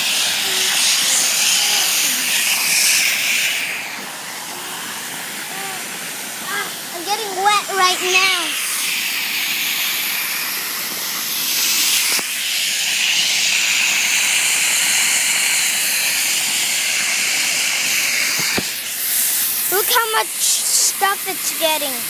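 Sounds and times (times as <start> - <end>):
water spraying hiss: 0.0 - 22.0.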